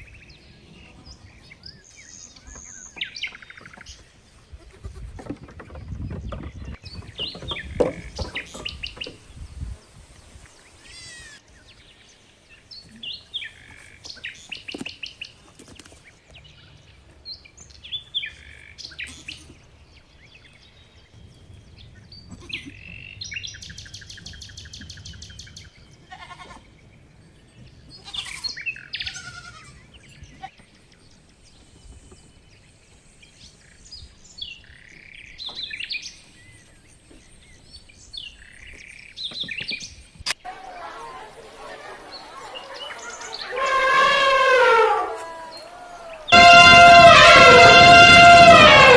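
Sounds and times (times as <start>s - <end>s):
animal high-pitched bleating cries: 10.8s - 11.4s, 22.3s - 22.7s, 26.1s - 26.6s, 28.0s - 29.8s, 43.5s - 45.6s.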